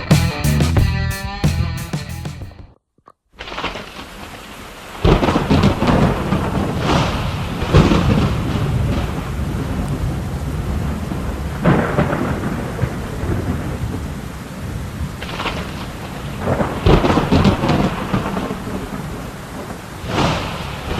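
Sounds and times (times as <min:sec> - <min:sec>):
heavy rain falling: 0:04.8 - 0:20.9
thunder crackling: 0:05.0 - 0:20.9.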